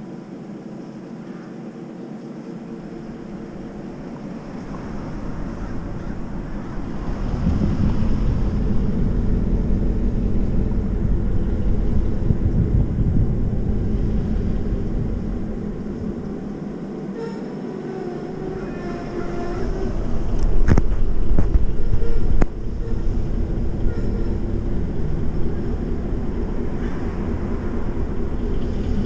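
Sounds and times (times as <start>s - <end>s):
train wheels rumbling on rail: 0.0s - 29.0s
faint wheel squeal: 17.0s - 24.6s.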